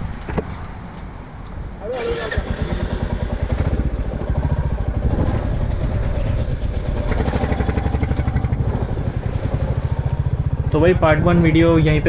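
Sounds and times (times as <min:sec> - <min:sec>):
motorcycle engine running: 0:01.9 - 0:12.0.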